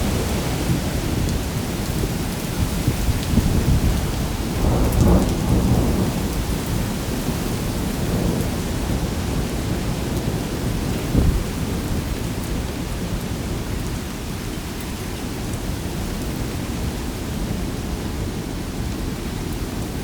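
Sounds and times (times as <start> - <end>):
deep wind rumble: 0.0 - 13.1
heavy rain rushing: 0.0 - 20.0.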